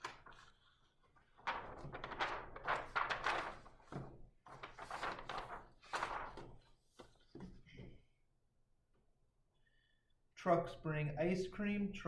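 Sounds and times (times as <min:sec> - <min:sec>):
book pages rustling and flapping: 0:00.0 - 0:07.9.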